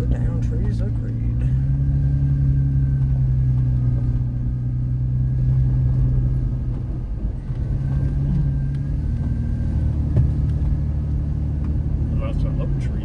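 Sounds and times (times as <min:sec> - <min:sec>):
car engine drone: 0:00.0 - 0:13.0.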